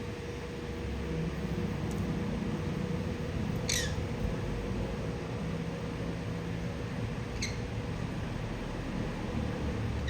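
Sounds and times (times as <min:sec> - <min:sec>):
parrot squeak: 0:03.6 - 0:04.0, 0:07.4 - 0:07.7.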